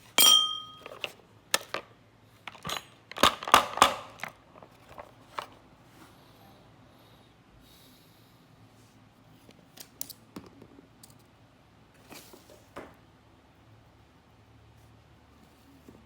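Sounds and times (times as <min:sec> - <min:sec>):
faint steady hum: 0:00.0 - 0:03.2
hard parts clicking and knocking: 0:02.5 - 0:05.5.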